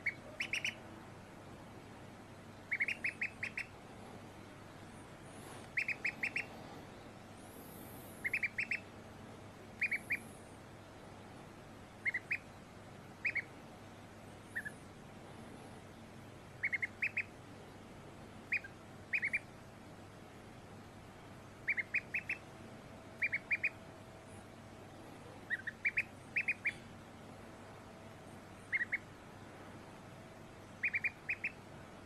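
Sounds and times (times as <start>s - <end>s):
duckling peeping: 0.0s - 0.9s, 2.6s - 3.8s, 5.4s - 6.8s, 7.8s - 8.9s, 9.8s - 10.4s, 12.0s - 13.6s, 14.4s - 14.9s, 16.6s - 17.4s, 18.4s - 19.6s, 21.6s - 22.5s, 23.2s - 23.8s, 25.2s - 26.9s, 28.5s - 29.2s, 30.6s - 32.0s.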